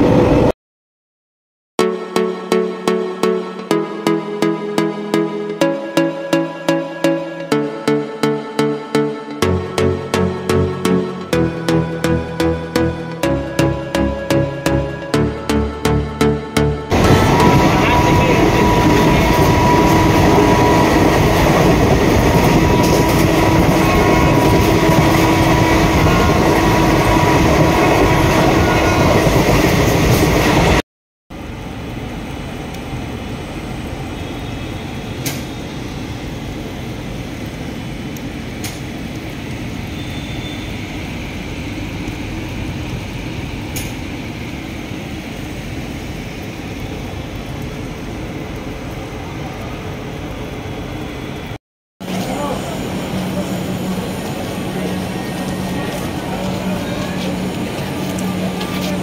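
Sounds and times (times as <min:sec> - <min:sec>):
train running at speed: 0:00.0 - 0:00.5, 0:03.6 - 0:59.0
quiet steady train sound: 0:16.9 - 0:30.8, 0:31.4 - 0:59.0.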